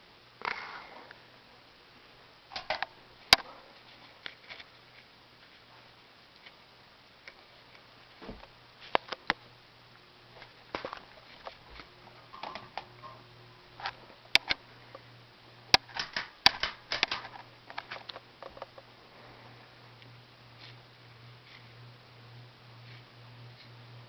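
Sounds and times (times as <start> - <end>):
ceiling fan motor humming: 0.0 - 24.0
sharp clicks and ticks: 15.7 - 18.7.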